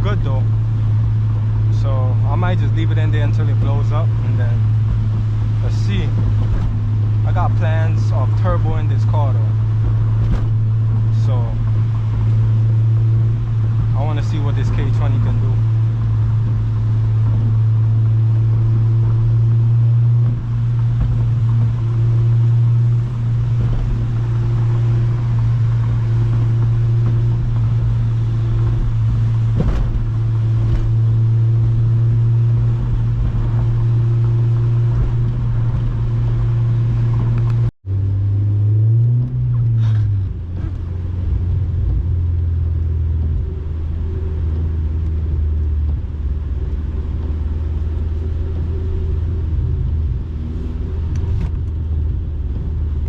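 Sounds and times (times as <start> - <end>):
tyre noise: 0.0 - 37.7
car engine drone: 0.0 - 53.0.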